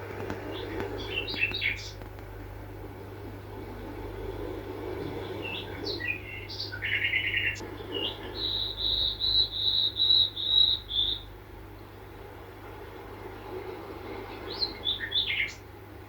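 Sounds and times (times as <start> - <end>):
songbird singing: 0.3 - 2.2, 5.0 - 11.9, 14.3 - 15.7.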